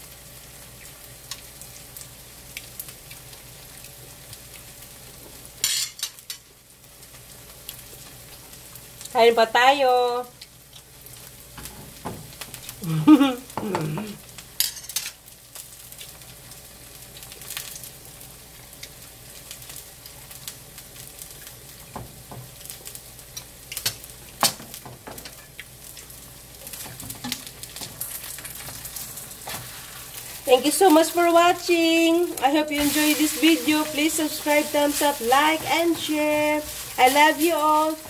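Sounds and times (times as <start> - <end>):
pancake sizzling in oil: 0.0 - 38.0
person humming: 12.8 - 14.3, 31.9 - 38.0.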